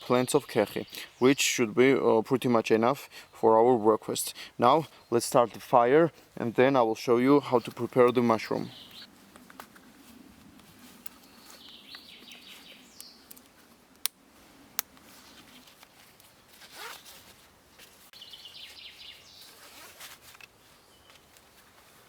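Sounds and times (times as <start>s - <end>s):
rasping and rustling handling: 14.8s - 18.1s, 19.4s - 22.0s.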